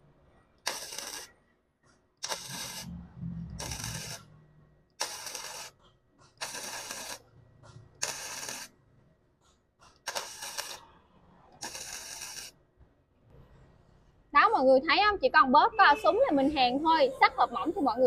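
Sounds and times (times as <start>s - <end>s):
welding arc crackling: 0.6s - 1.4s, 2.2s - 4.3s, 5.0s - 7.3s, 8.0s - 8.8s, 9.8s - 10.9s, 11.6s - 12.6s.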